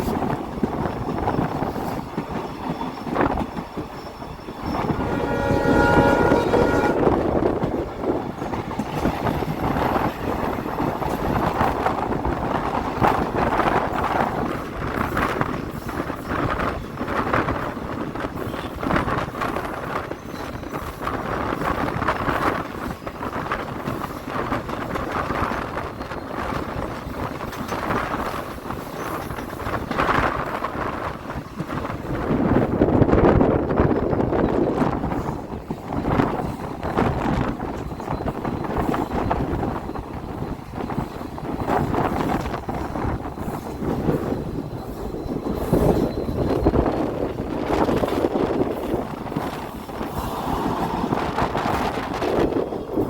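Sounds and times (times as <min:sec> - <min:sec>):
train rumbling: 0:00.0 - 0:53.0
locomotive horn: 0:04.7 - 0:07.4.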